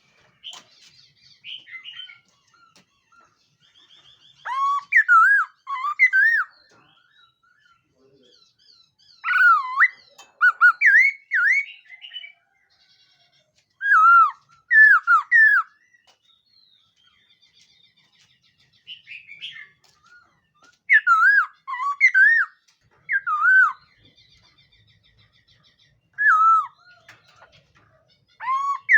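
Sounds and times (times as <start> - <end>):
bird singing whistled phrases: 4.4 - 6.6, 9.2 - 12.3, 13.8 - 15.8, 20.9 - 23.9, 26.2 - 26.8, 28.4 - 28.9.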